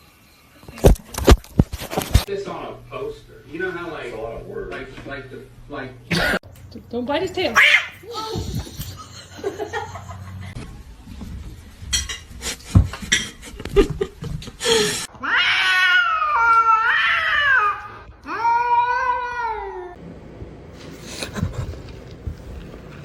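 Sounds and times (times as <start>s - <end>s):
cat yowling: 7.5s - 8.0s, 15.2s - 20.0s.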